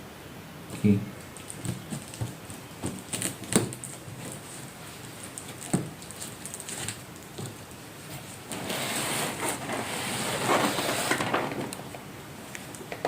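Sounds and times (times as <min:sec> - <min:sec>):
cardboard packaging rustling: 0:01.2 - 0:12.0.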